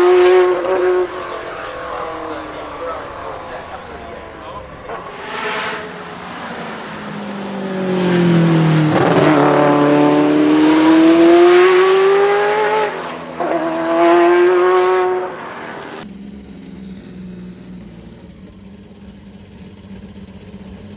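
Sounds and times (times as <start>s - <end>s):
engine idling: 0.0s - 11.1s, 16.0s - 20.9s
sports car engine revving: 0.0s - 20.9s.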